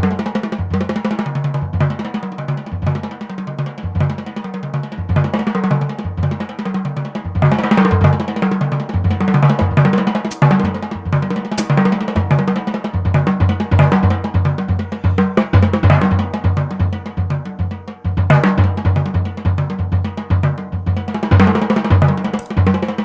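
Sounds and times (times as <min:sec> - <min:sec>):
jazz drum solo: 0:00.0 - 0:23.0.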